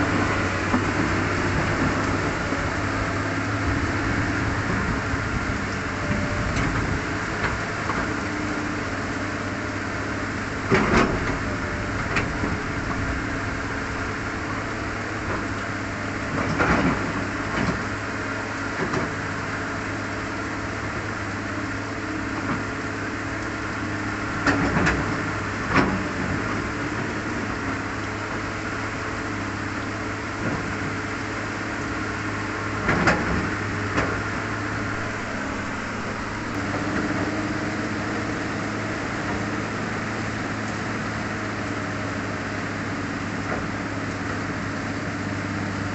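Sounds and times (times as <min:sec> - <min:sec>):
heavy rain pouring: 0:00.0 - 0:16.3, 0:16.9 - 0:45.9
steady low hum: 0:31.9 - 0:40.3.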